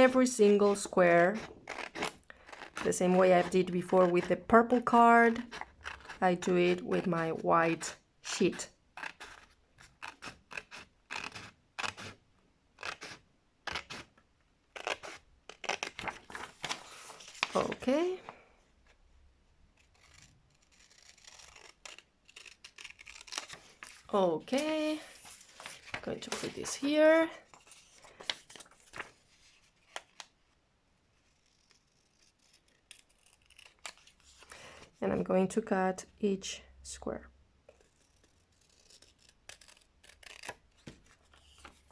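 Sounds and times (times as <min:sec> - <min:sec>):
scissors snipping paper: 0:00.0 - 0:12.2, 0:12.8 - 0:14.1, 0:19.8 - 0:27.9, 0:31.3 - 0:34.4, 0:37.8 - 0:41.8.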